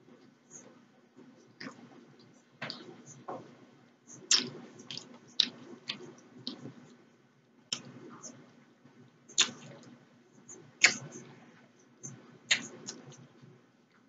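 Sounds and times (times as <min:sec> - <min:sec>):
chewing with wet smacks: 0:04.2 - 0:07.0, 0:09.3 - 0:09.9, 0:12.1 - 0:13.3.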